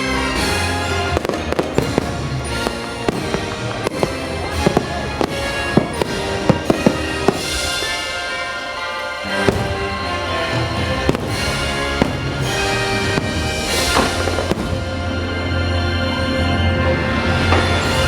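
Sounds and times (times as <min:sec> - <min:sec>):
fireworks bangs: 0:00.0 - 0:15.8, 0:17.2 - 0:18.0
music with held notes: 0:00.0 - 0:18.0.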